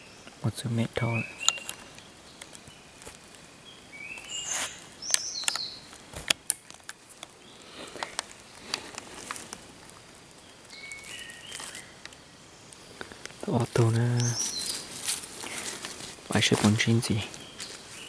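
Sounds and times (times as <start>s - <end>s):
birds whistling: 1.0s - 3.0s, 3.7s - 5.9s, 10.7s - 12.0s, 12.8s - 15.8s.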